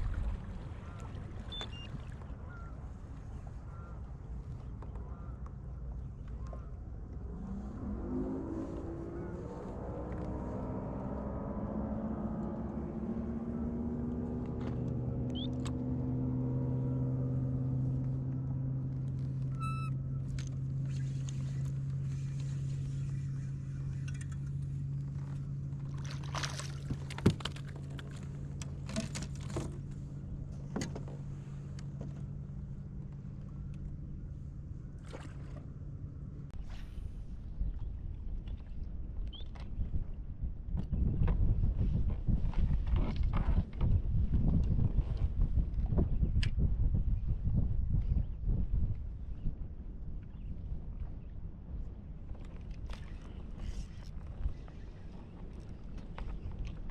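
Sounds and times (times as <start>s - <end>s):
boat motor running: 0.0s - 36.6s.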